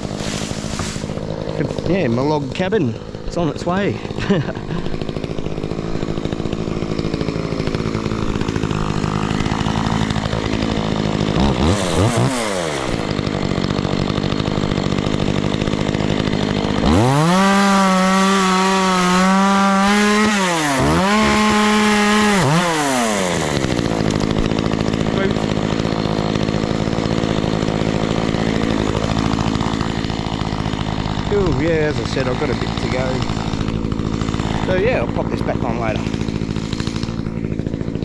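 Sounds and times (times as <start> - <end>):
chainsaw cutting log: 0.0 - 38.0
chainsaw idling and revving: 0.0 - 38.0.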